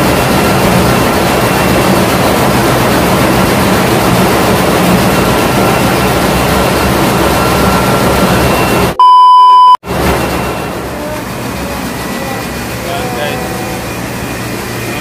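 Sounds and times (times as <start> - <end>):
ship engine room din: 0.0 - 15.0
loud electronic beep tone: 7.2 - 10.7.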